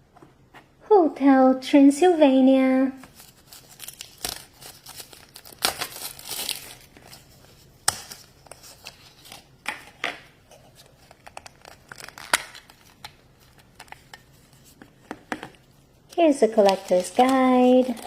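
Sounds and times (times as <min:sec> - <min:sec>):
toy packaging crinkling: 0:03.1 - 0:07.3, 0:10.9 - 0:14.8, 0:16.1 - 0:18.0.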